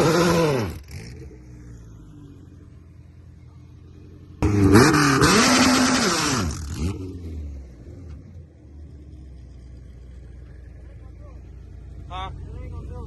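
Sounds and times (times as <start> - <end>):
race car engine revving: 0.0 - 2.8, 4.2 - 9.6.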